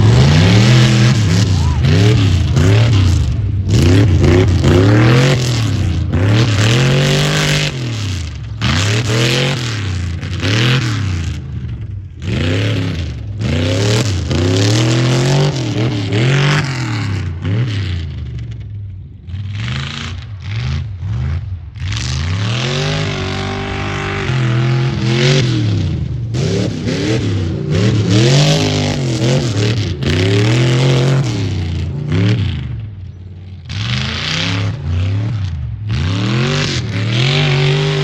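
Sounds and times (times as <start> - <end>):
truck engine revving hard: 0.0 - 18.6, 19.2 - 38.0.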